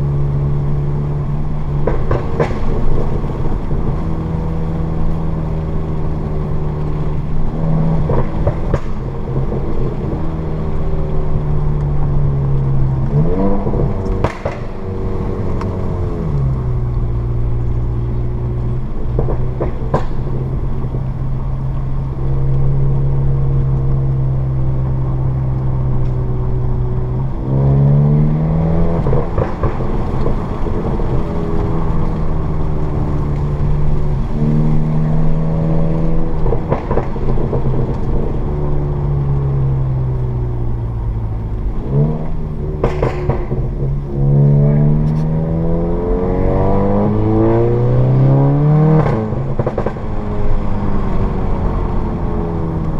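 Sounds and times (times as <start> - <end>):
car engine running: 0.0 - 52.9
sharp exhaust pops: 1.6 - 4.4, 7.6 - 10.4, 13.0 - 17.8, 18.6 - 21.2, 28.9 - 39.0, 41.7 - 45.4.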